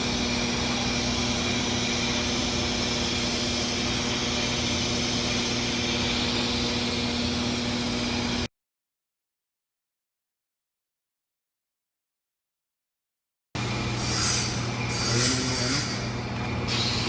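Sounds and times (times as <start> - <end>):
welding machine hum: 0.0 - 8.5, 13.6 - 17.0
welding arc frying hiss: 13.6 - 17.0.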